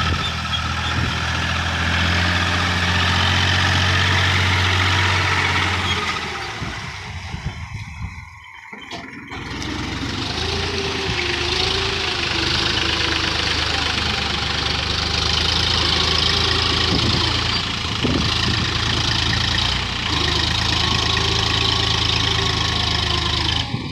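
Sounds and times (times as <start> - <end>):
tractor diesel engine running: 0.0 - 23.9.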